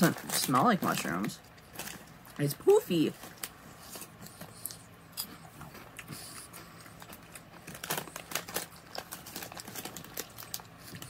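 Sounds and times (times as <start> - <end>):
snack bag crinkling: 0.0 - 11.0
person crunching a snack: 3.4 - 11.0.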